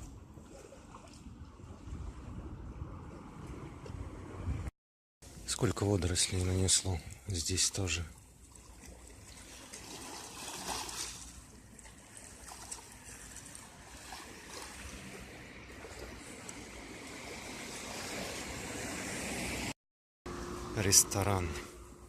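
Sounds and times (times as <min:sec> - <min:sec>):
small waves lapping on beach: 0:08.1 - 0:19.7.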